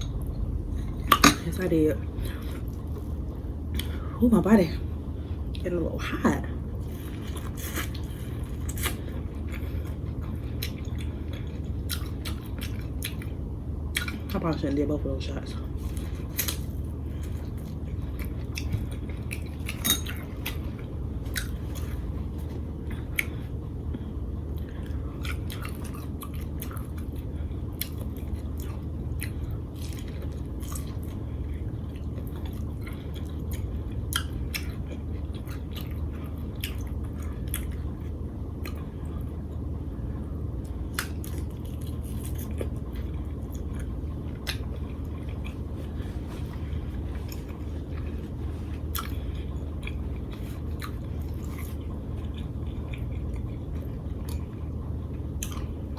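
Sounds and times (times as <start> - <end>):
low hum: 0.0 - 55.9
chewing and lip-smacking: 6.9 - 14.3, 15.8 - 39.7, 40.6 - 55.9.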